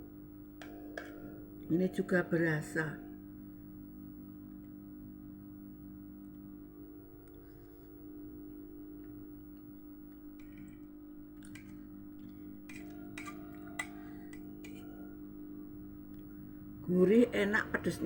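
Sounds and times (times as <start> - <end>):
steady low hum: 0.0 - 18.0
spoon clicking and scraping plate: 12.7 - 15.0.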